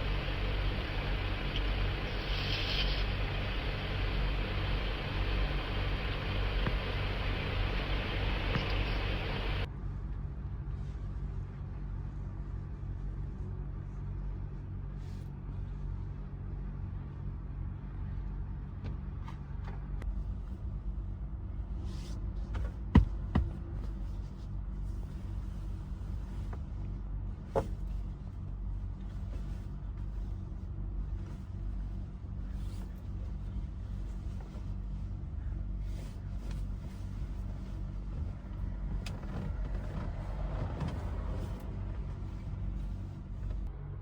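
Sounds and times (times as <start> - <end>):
hiss: 0.0 - 9.7
truck engine rumble: 0.0 - 44.0.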